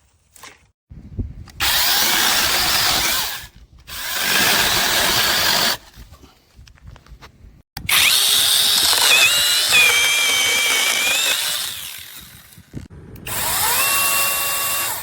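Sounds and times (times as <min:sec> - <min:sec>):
mini chainsaw whining: 0:07.8 - 0:15.0.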